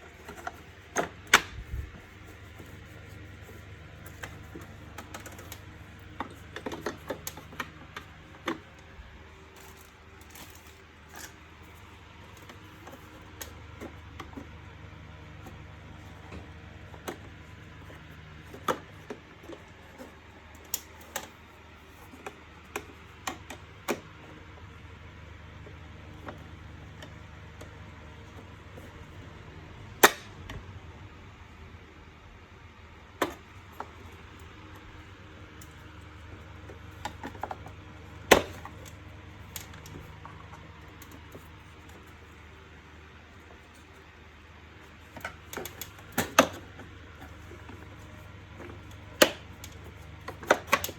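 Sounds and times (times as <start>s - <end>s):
plastic parts clicking together: 0.0s - 11.4s, 29.9s - 30.6s, 33.2s - 42.2s, 44.9s - 50.9s
steady low hum: 0.0s - 50.9s.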